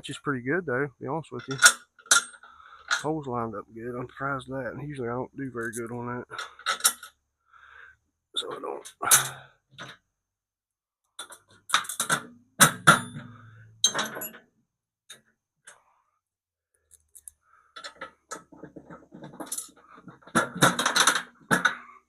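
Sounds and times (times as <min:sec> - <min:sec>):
hardware rattling: 0:01.4 - 0:03.2, 0:05.6 - 0:07.2, 0:11.2 - 0:14.4, 0:16.9 - 0:21.9
metal bolts clinking: 0:01.4 - 0:03.2, 0:05.6 - 0:07.1, 0:08.4 - 0:10.0, 0:11.2 - 0:14.4, 0:16.9 - 0:21.8.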